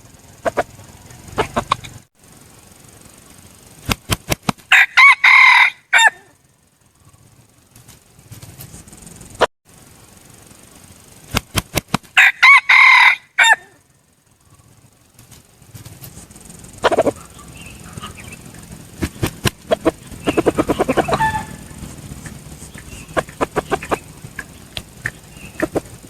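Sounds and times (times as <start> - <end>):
rapid chicken clucks: 0.4 - 2.0, 16.7 - 26.0
rooster crowing: 4.7 - 6.4, 12.2 - 13.9, 16.8 - 18.7, 19.8 - 24.6.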